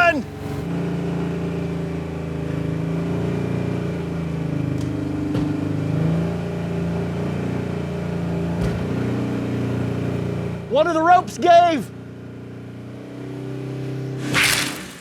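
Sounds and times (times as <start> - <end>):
vehicle engine revving under load: 0.0 - 10.7.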